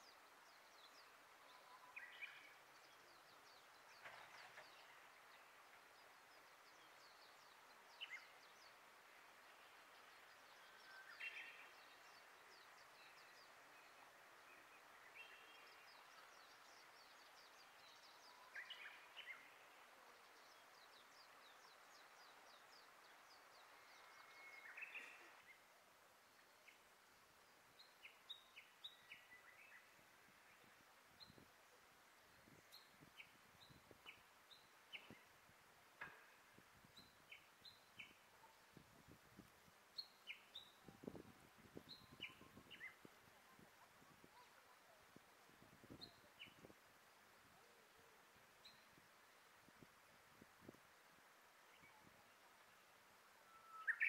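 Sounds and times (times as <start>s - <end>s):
wild birds singing and calling: 0.0s - 25.8s, 40.0s - 45.2s, 51.7s - 54.0s
soft steady hiss: 0.0s - 54.0s.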